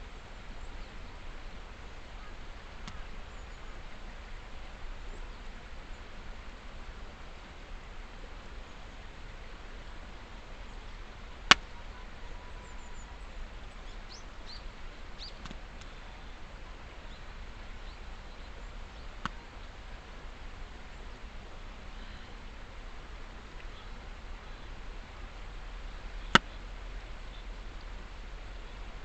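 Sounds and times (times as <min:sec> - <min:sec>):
faint bird chirps: 0:02.1 - 0:03.9, 0:10.6 - 0:19.8, 0:21.8 - 0:22.5, 0:23.6 - 0:29.0.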